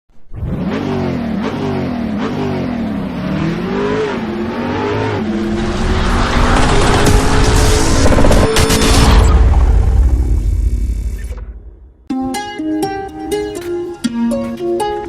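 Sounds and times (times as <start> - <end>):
car engine revving: 0.2 - 10.7.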